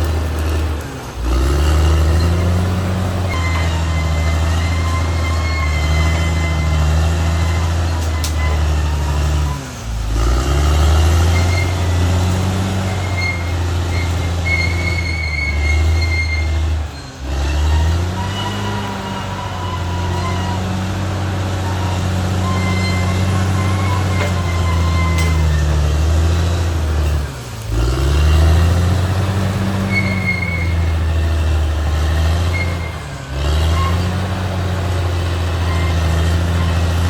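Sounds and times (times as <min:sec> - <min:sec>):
bulldozer diesel engine droning: 0:00.0 - 0:37.0
faint high squeaks: 0:03.3 - 0:09.8, 0:11.2 - 0:11.9, 0:12.7 - 0:26.0, 0:29.6 - 0:34.3.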